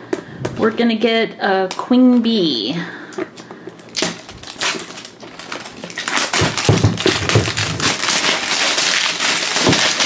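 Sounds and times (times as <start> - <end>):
packaging tearing and crinkling: 3.8 - 10.0.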